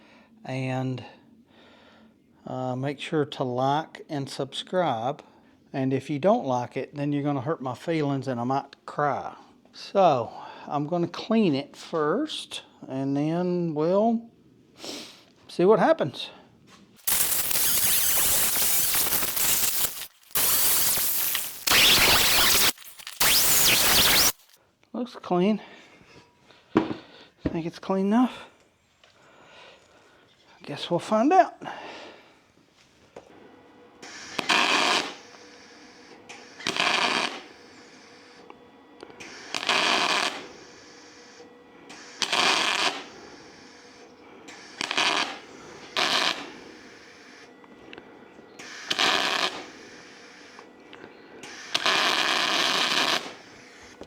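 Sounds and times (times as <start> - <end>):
cleaning spray hissing: 17.0 - 24.6
welding arc sputtering crackle: 17.0 - 24.6, 34.0 - 35.4, 36.4 - 38.0, 39.2 - 41.3, 42.0 - 47.3, 48.6 - 50.5, 51.5 - 53.6.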